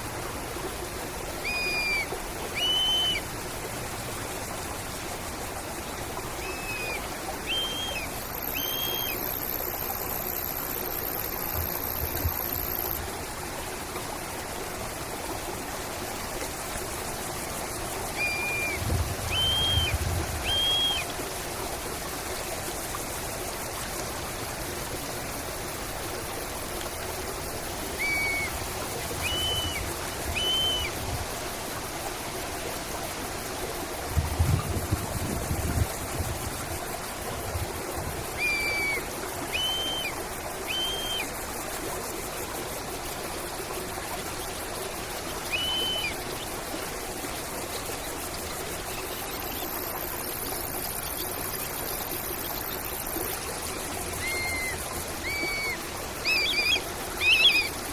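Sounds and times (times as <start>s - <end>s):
stream trickling: 0.0s - 57.9s
bird whistling: 2.6s - 3.2s, 6.5s - 9.2s, 18.2s - 19.9s, 20.5s - 21.0s, 28.0s - 28.5s, 29.2s - 30.9s, 38.4s - 40.1s, 40.7s - 41.3s, 45.5s - 46.1s, 54.2s - 57.7s.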